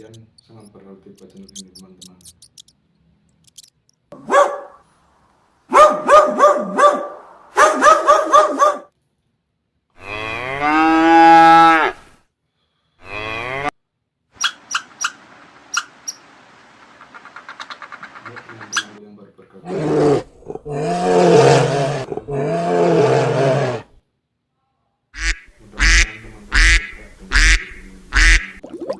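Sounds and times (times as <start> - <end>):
sharp clicks: 0.0 - 4.0
cow mooing: 10.0 - 12.0, 13.0 - 13.7, 20.7 - 23.8.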